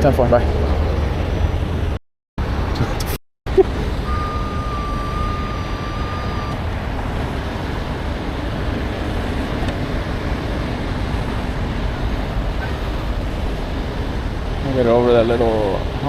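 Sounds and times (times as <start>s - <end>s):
truck engine and road rumble: 0.0s - 16.0s
high electronic tone: 3.5s - 6.6s.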